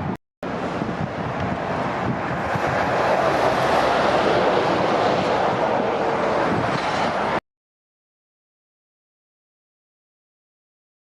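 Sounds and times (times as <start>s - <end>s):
heavy lorries on motorway: 0.0s - 7.4s
wind on microphone: 0.0s - 7.4s.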